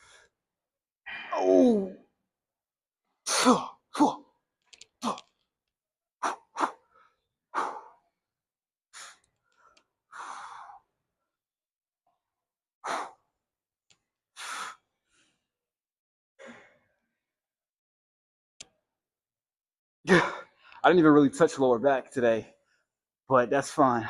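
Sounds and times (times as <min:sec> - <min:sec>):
man sighing and exhaling hard: 0:01.1 - 0:02.0, 0:03.3 - 0:04.2.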